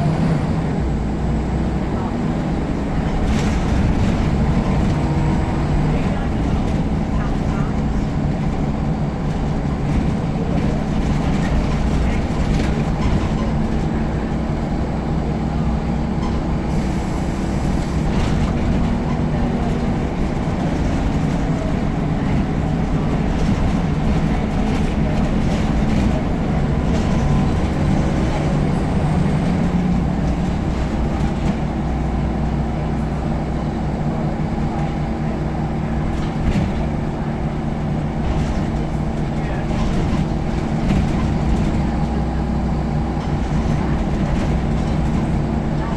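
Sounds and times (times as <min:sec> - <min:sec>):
bus diesel engine droning: 0:00.0 - 0:45.9
body rattles and knocks: 0:06.3 - 0:14.0, 0:18.2 - 0:31.8.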